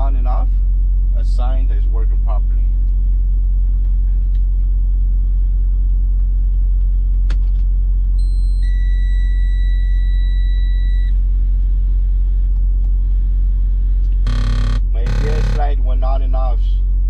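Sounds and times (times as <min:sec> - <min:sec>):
low engine rumble: 0:00.0 - 0:08.2, 0:10.9 - 0:17.0
dashboard warning tone: 0:14.3 - 0:15.9.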